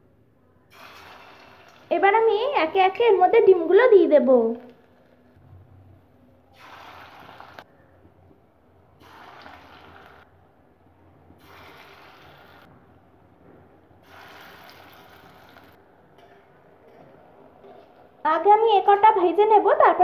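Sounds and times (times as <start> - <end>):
battered food sizzling in oil: 0.7 - 1.9, 6.5 - 7.7, 9.0 - 10.3, 11.4 - 12.7, 14.0 - 15.8.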